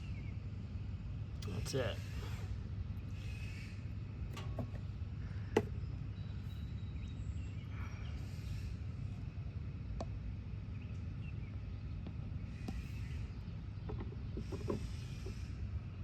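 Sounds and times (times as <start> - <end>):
low outdoor rumble: 0.0 - 16.0
light clicks and knocks: 4.3 - 4.9.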